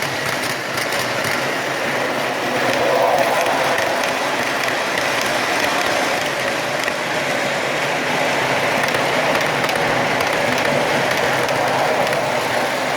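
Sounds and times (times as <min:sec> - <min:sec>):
model train rolling on track: 0:00.0 - 0:12.9.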